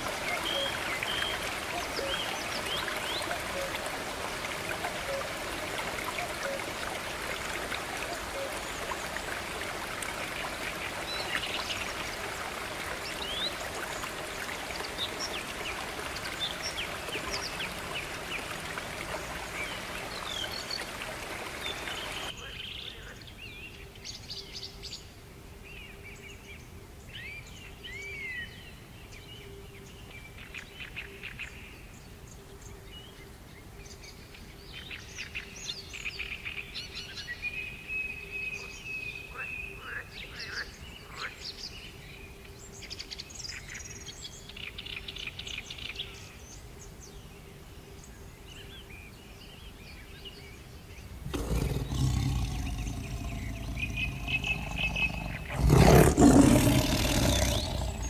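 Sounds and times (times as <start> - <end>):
birds chirping and trilling: 48.8 - 58.0
rushing hiss: 51.2 - 58.0.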